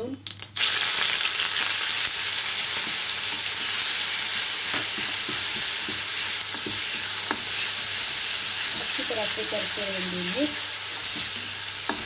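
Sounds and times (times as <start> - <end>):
onion sizzling in hot oil: 0.0 - 12.0
metal spatula scraping and tapping pan: 4.7 - 7.6.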